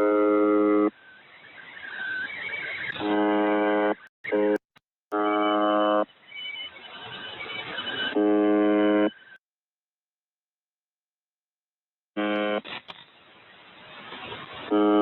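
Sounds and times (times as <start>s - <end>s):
radio buzzer tone: 0.0s - 9.4s, 14.6s - 15.0s.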